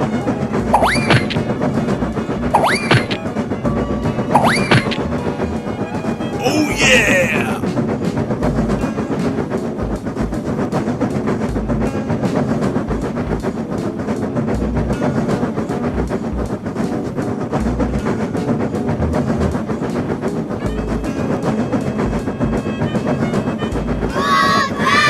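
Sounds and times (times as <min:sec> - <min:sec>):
train wheels clicking over rails: 0:00.0 - 0:25.0.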